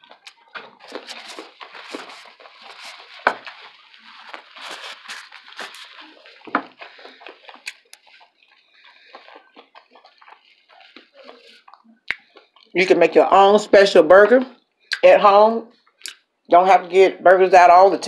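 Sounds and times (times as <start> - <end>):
paper napkin rustling: 0.0 - 11.8
person chewing: 0.0 - 12.8, 15.7 - 16.3.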